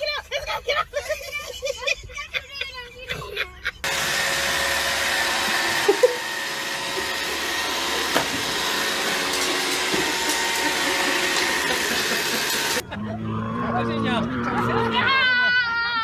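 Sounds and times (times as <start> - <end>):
electric motor whining: 3.8 - 12.8.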